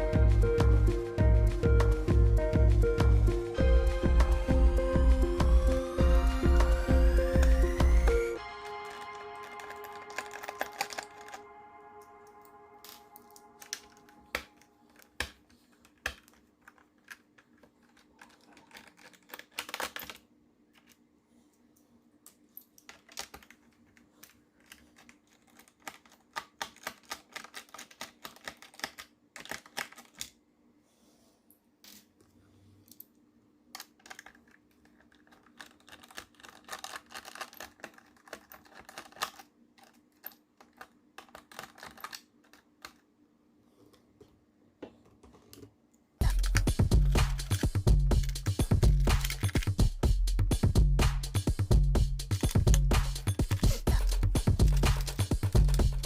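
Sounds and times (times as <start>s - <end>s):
hand tools clicking and rattling: 8.9s - 11.4s, 34.0s - 42.6s, 46.2s - 49.9s, 52.2s - 56.0s.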